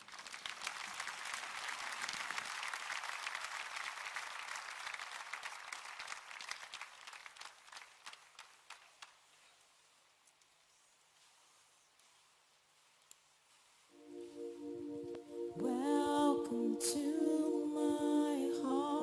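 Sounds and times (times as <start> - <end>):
congregation applauding: 0.0 - 9.2.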